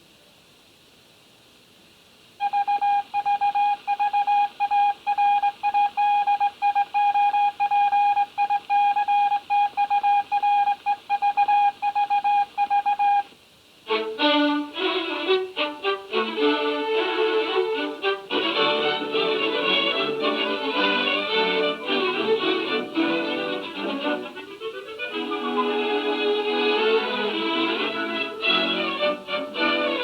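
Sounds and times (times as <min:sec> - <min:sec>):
film score music with violin: 0:13.9 - 0:30.0.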